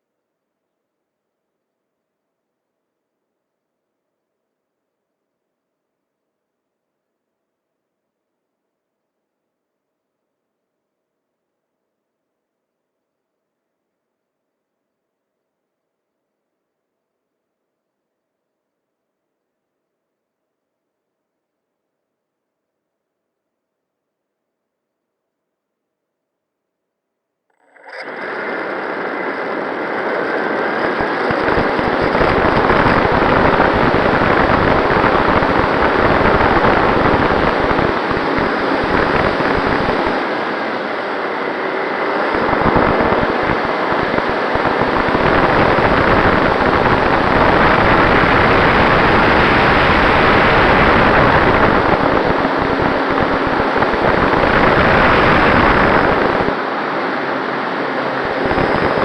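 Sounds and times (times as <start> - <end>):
model plane motor running: 27.6 - 56.6, 57.3 - 59.0
wind buffeting microphone: 29.9 - 40.6, 42.0 - 59.0.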